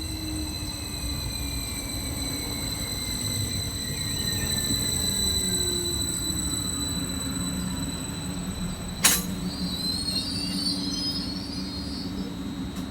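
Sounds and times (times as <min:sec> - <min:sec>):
train rumbling on rails: 0:00.0 - 0:12.9
sharp click: 0:09.0 - 0:09.4.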